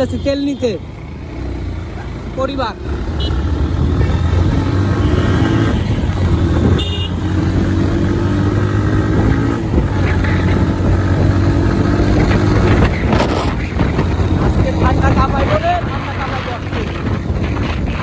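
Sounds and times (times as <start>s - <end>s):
motorcycle engine running: 0.0s - 18.0s
high-pitched horn toot: 6.7s - 7.2s.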